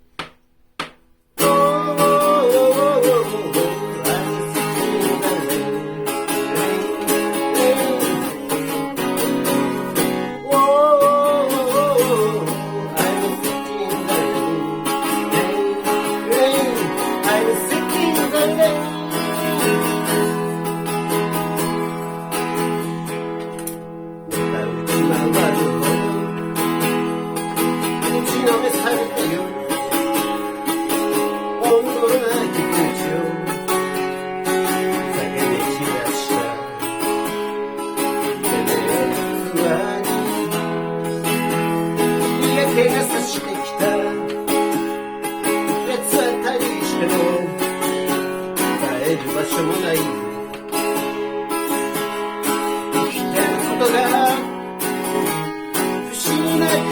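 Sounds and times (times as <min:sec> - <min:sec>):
acoustic guitar strumming: 0:00.0 - 0:56.9
wavering melody line: 0:01.4 - 0:23.4.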